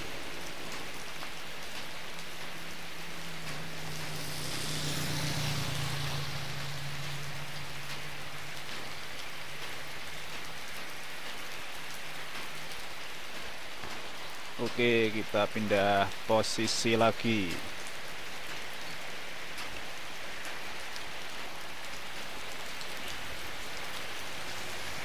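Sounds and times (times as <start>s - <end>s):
vehicle passing hum: 0.0s - 10.1s, 23.1s - 25.0s
rain on wet road: 0.0s - 25.0s.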